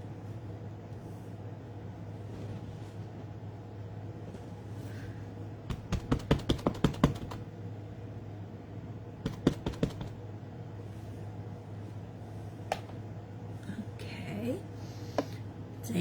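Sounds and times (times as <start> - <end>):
ink pad tapping rubber stamp: 5.7 - 7.4, 9.3 - 10.2.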